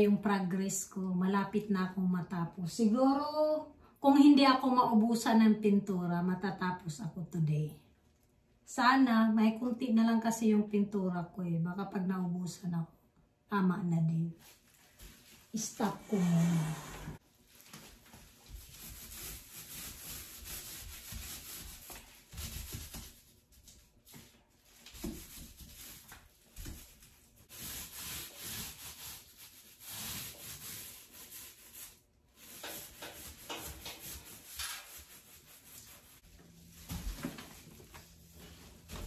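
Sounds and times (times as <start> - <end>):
paint applicator rubbing on wood: 27.5 - 36.4.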